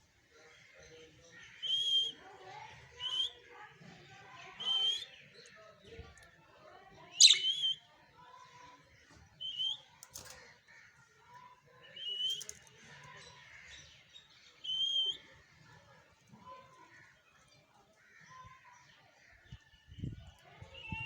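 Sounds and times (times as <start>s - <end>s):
faint soft parrot chatter: 0.4s - 9.0s
parrot whistled calls: 7.2s - 7.8s.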